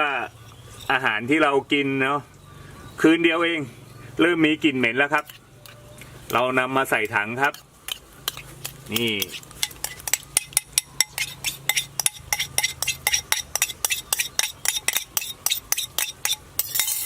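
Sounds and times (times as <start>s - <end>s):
spoon scraping and knocking bowl: 7.4s - 17.0s.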